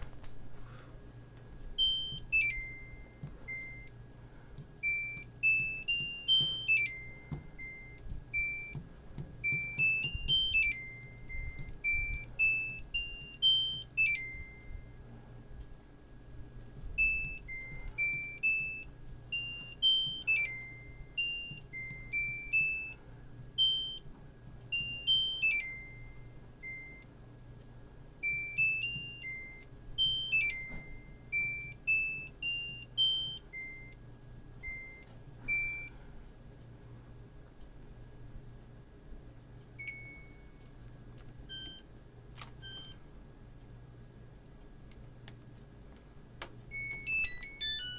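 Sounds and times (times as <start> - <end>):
steady low hum: 0.0 - 47.9
washing machine beeper melody: 1.8 - 4.0, 4.8 - 8.8, 9.4 - 15.1, 16.9 - 24.1, 24.7 - 27.2, 28.2 - 34.0, 34.6 - 36.0, 39.8 - 40.6, 41.5 - 41.9, 42.6 - 43.0, 46.7 - 47.9.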